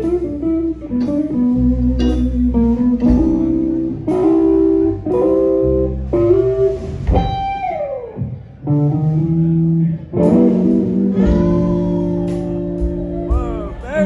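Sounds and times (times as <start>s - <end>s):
bass guitar: 0.0s - 14.0s
electric guitar lines: 0.0s - 14.0s
drums beating: 3.0s - 5.4s, 6.8s - 7.7s, 10.4s - 14.0s.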